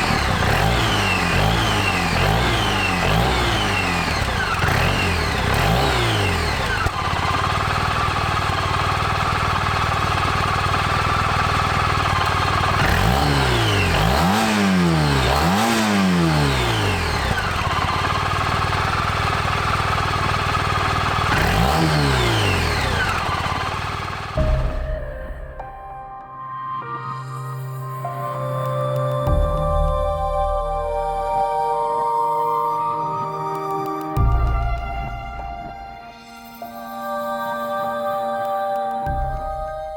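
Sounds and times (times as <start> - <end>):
scooter engine running: 0.0 - 25.3.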